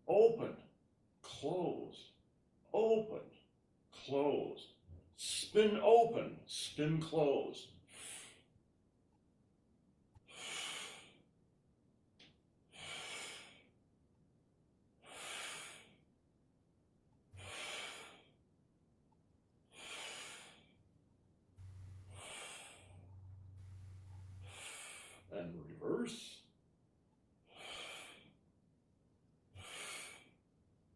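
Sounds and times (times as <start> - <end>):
person breathing: 7.8 - 8.5, 10.2 - 11.2, 12.7 - 13.8, 15.0 - 16.1, 17.4 - 18.4, 19.7 - 20.8, 21.6 - 25.3, 27.5 - 28.4, 29.6 - 30.4
low hum: 21.6 - 25.4.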